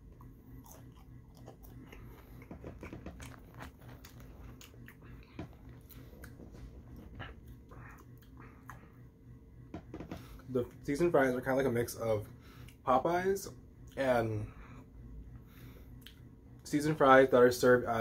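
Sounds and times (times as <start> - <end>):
chewing fries with soft crunches: 0.0 - 9.1.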